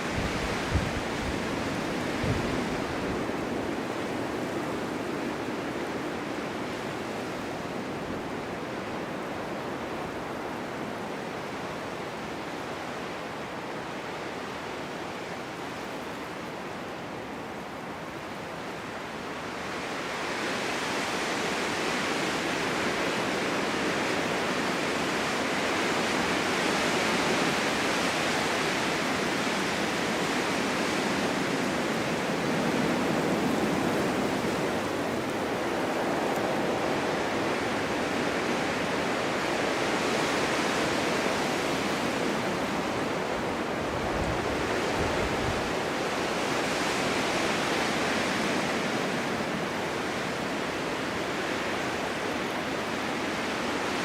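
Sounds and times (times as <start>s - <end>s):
strong wind rushing: 0.0s - 8.0s, 27.5s - 52.6s.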